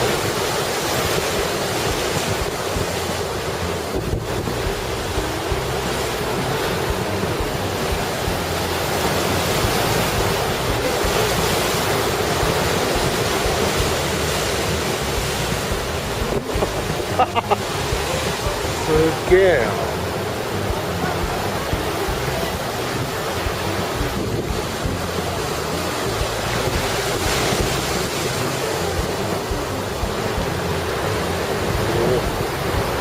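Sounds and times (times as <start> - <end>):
heavy surf breaking: 0.0 - 33.0
wind buffeting microphone: 0.0 - 33.0.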